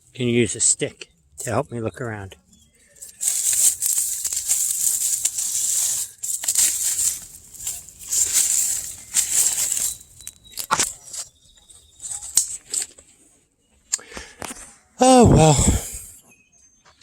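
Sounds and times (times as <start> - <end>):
leaf litter rustling and crackling: 2.8 - 13.0.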